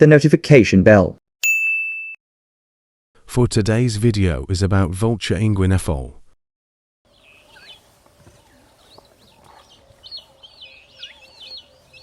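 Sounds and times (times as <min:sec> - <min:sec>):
guineafowl chirping calls: 0:07.1 - 0:12.0.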